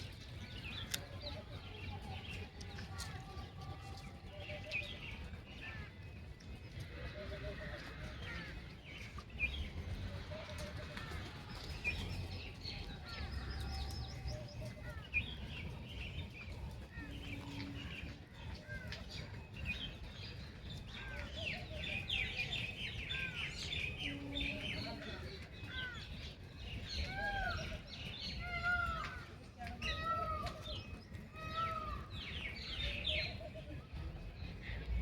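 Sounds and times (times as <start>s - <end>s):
birds chirping: 3.9s - 34.8s.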